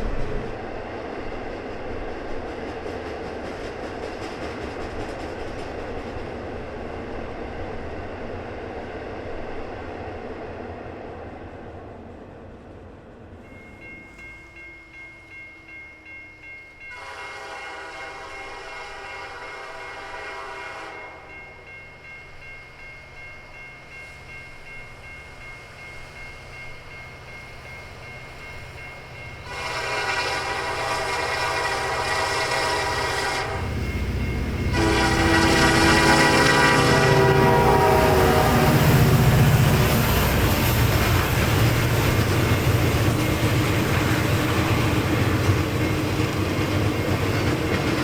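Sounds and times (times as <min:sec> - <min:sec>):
train engine rumble: 0:00.0 - 0:48.0
locomotive horn blasts: 0:16.9 - 0:21.3, 0:29.4 - 0:33.8, 0:34.6 - 0:39.6.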